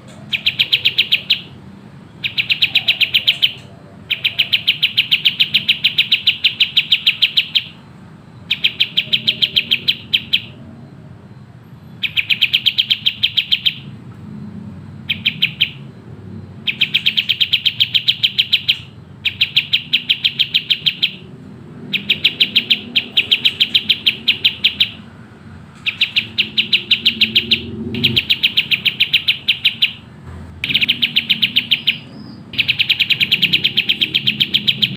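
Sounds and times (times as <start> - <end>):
songbird rapid high chirps: 0.0 - 14.0, 15.0 - 34.9.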